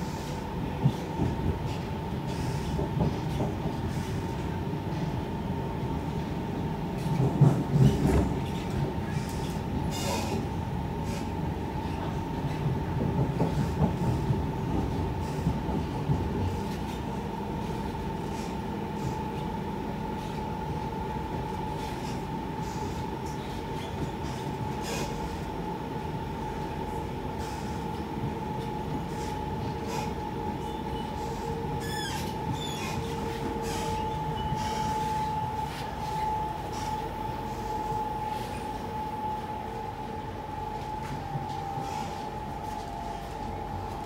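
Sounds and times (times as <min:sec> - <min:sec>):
train wheels rumbling on rail: 0:00.0 - 0:44.0
brief high squeaks: 0:31.8 - 0:35.3.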